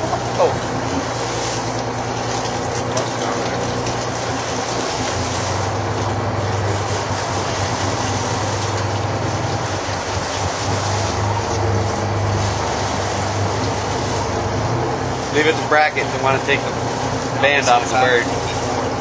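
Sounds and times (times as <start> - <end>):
boat engine running: 0.0 - 19.0
wind and water hiss: 3.7 - 18.9.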